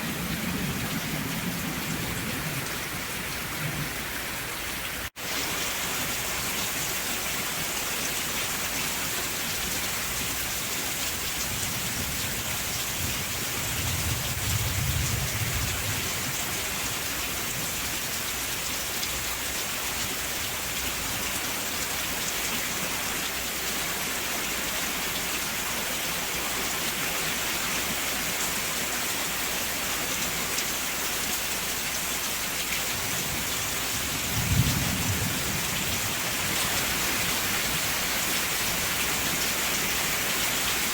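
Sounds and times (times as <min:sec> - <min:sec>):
steady rain: 0:00.0 - 0:40.9
thunder: 0:13.0 - 0:16.2, 0:34.2 - 0:36.0.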